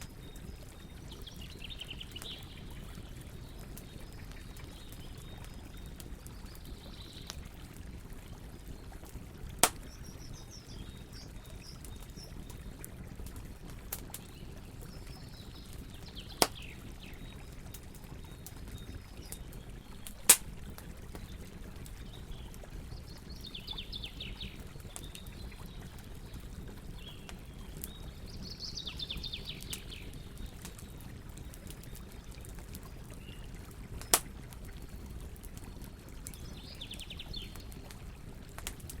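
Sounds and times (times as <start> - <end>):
flowing water: 0.0 - 39.0
small birds chirping: 0.0 - 39.0
wood fire crackling: 0.0 - 39.0
loud fire pops: 9.6 - 10.1, 20.0 - 20.9, 34.0 - 34.4.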